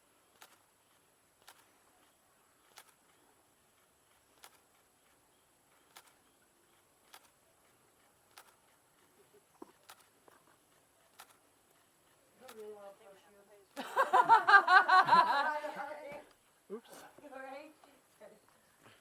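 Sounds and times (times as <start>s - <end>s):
camera shutter clicks: 0.3s - 0.7s, 1.4s - 1.8s, 2.6s - 3.1s, 4.4s - 4.8s, 5.8s - 6.3s, 7.0s - 7.4s, 8.3s - 8.6s, 9.8s - 10.2s, 11.1s - 11.4s, 12.4s - 12.8s.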